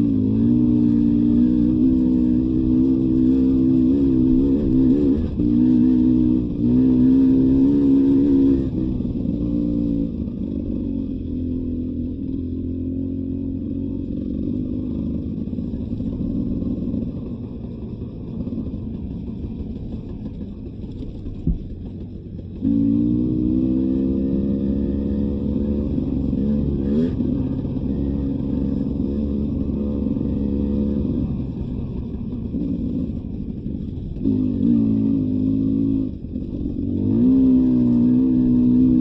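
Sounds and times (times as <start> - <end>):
dirt bike engine revving: 0.0 - 10.2, 22.6 - 33.2, 34.1 - 39.0.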